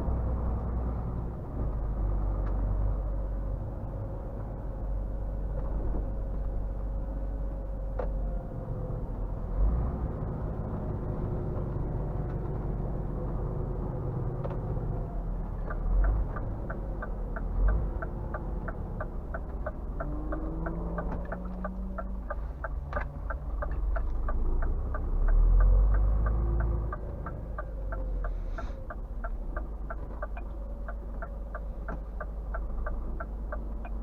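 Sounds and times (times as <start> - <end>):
truck diesel engine rumbling: 0.0 - 34.0
turn signal ticking: 14.4 - 34.0.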